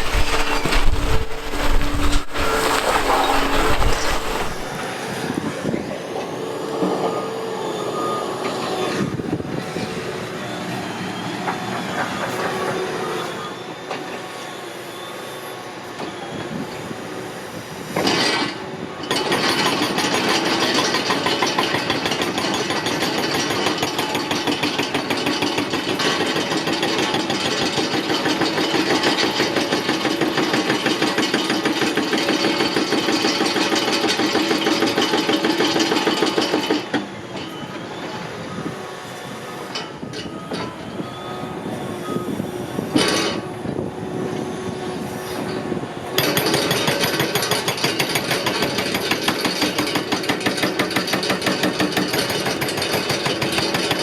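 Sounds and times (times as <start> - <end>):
concrete and steel scraping: 0.0 - 4.8
excavator engines under load: 0.0 - 54.0.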